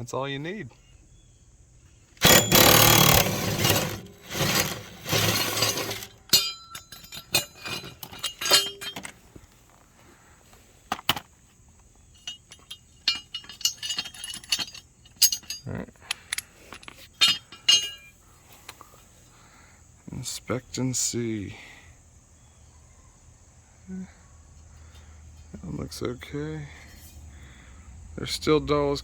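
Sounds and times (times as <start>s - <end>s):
impact driver hammering: 2.2s - 6.6s
metallic clinks and knocks: 2.2s - 9.2s, 12.1s - 18.2s.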